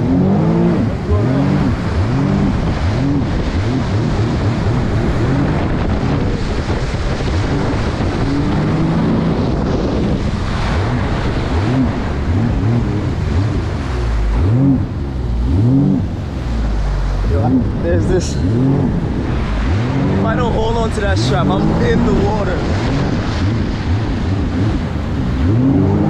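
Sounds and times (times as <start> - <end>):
jet ski engine revving: 0.0 - 26.0
wind noise on microphone: 0.0 - 26.0.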